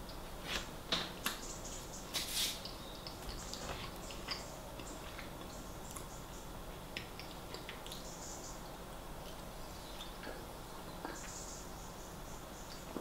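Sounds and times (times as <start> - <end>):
rustle: 2.1 - 2.7
wet chewing clicks and smacks: 6.9 - 8.1.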